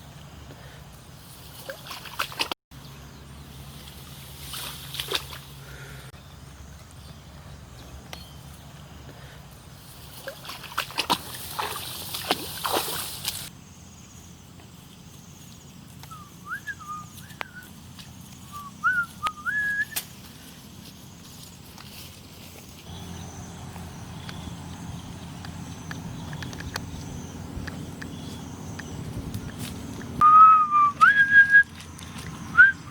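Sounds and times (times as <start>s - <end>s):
water splashing and sloshing: 0.0s - 2.6s, 3.4s - 6.1s, 8.4s - 13.5s, 31.0s - 32.7s
sliding whistled notes: 18.5s - 20.0s, 30.2s - 31.7s, 32.5s - 32.9s.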